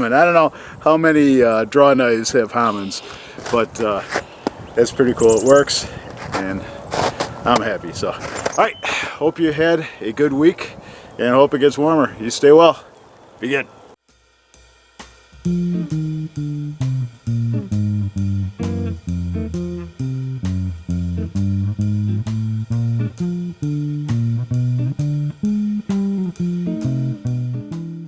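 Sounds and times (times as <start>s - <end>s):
blues guitar plucked notes: 15.4s - 28.0s.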